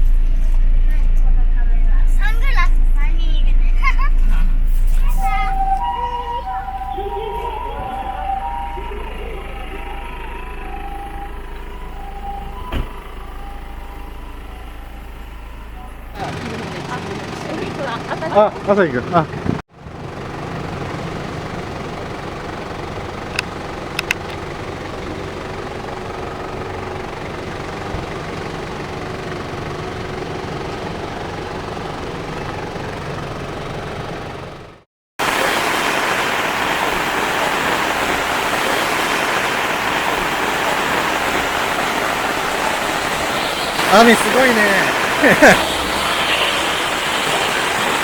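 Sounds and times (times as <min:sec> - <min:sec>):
road and engine noise in car: 0:00.0 - 0:48.0
heavy rain pouring: 0:05.2 - 0:15.6, 0:16.2 - 0:19.4, 0:35.2 - 0:48.0.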